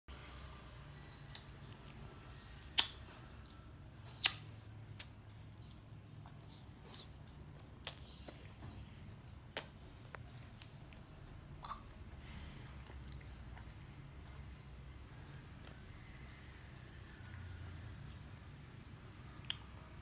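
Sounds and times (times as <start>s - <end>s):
low steady hum: 0.1s - 20.0s
mouth clicks chewing: 2.7s - 20.0s.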